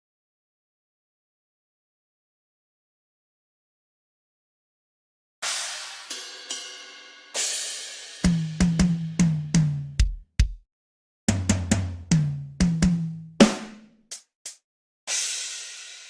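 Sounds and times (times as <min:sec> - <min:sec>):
cymbal crash: 0:05.4 - 0:08.4, 0:15.1 - 0:16.0
drum kick and snare pattern: 0:08.2 - 0:10.6, 0:11.3 - 0:14.6.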